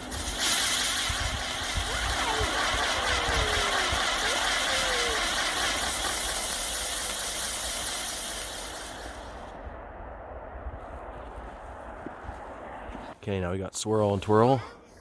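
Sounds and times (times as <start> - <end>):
spinning firework hissing sparks: 0.0 - 9.6.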